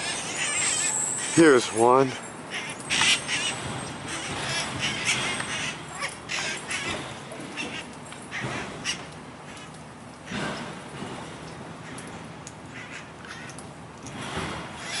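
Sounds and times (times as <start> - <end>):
parrots squawking: 0.0 - 9.7.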